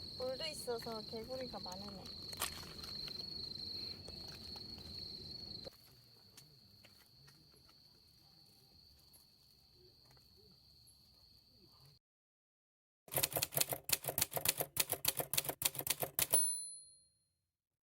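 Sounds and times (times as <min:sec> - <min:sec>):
faint insects trilling: 0:00.0 - 0:12.0.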